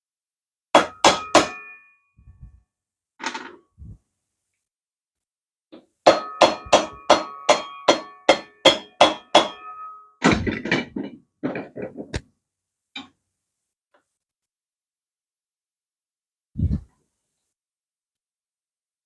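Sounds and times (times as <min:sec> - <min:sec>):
hammer striking metal: 0:00.8 - 0:01.9, 0:06.1 - 0:10.5.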